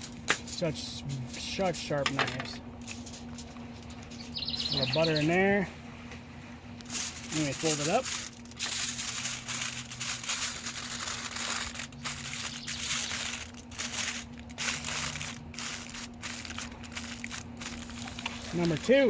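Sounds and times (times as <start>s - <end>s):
tin foil crinkling: 6.7s - 19.0s.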